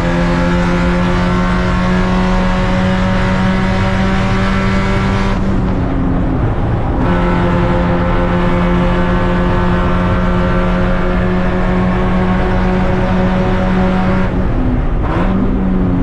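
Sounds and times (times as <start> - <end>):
race car engine running: 0.0 - 16.0
rushing noise: 1.8 - 16.0.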